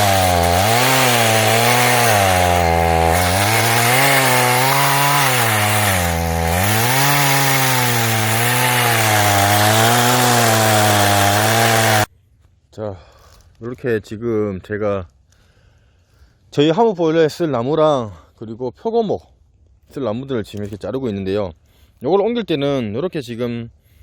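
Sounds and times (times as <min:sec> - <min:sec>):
chainsaw cutting logs: 0:00.0 - 0:12.1.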